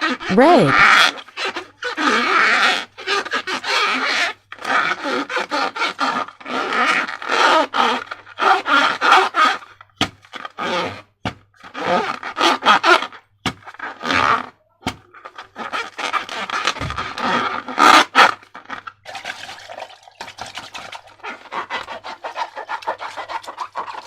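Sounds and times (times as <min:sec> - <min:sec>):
wet slime squelching: 0:18.0 - 0:24.0.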